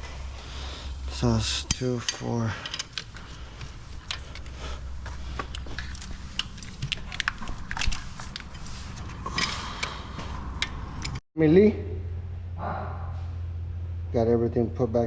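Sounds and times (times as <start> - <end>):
steady low hum: 0.0 - 15.0
hand tools clicking and tapping: 1.7 - 11.2.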